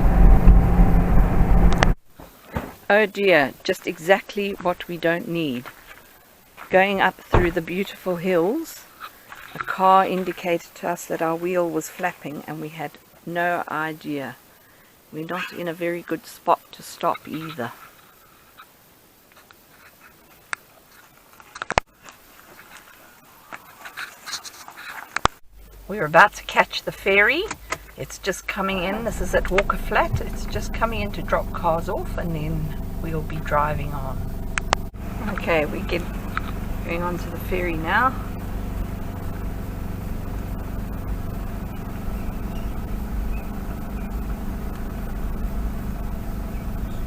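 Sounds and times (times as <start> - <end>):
car engine drone: 0.0 - 2.0, 6.8 - 8.3, 25.5 - 47.0
faint road noise: 0.0 - 47.0
sharp clicks and crackles: 19.3 - 25.8, 34.5 - 36.7.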